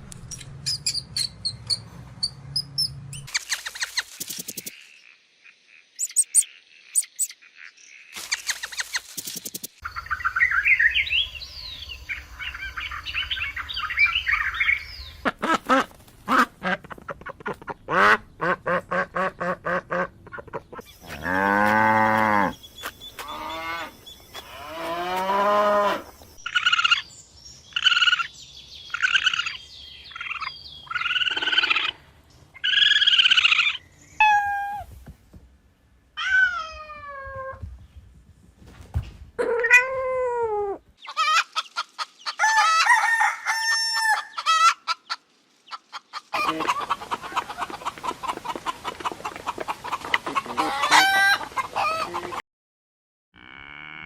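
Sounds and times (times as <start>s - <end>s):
chickens clucking and squawking: 41.0s - 52.4s
rooster crowing: 42.4s - 44.7s.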